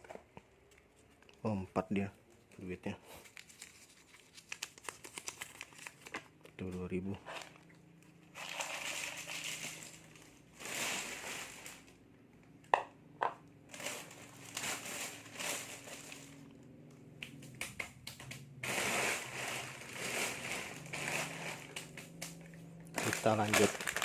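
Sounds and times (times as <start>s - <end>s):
plastic packets crinkling: 2.6s - 12.0s, 13.6s - 16.6s, 17.2s - 24.0s
sharp snaps: 17.2s - 18.5s.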